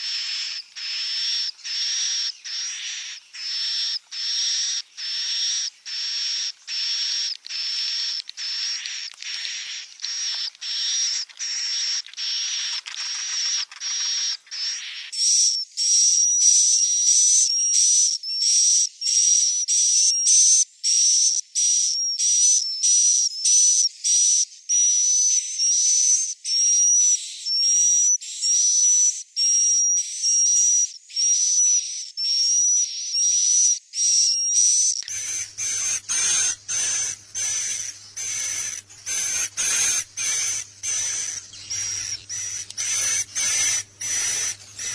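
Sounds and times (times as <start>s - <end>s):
swiftlet chicks chirping: 0.0s - 15.1s, 35.0s - 44.9s.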